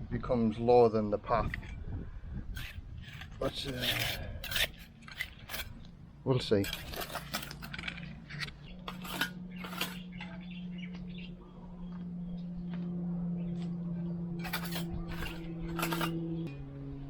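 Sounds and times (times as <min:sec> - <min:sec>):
low droning tone: 0:01.3 - 0:17.0
sharp clinks and knocks: 0:06.6 - 0:10.4, 0:14.4 - 0:16.2.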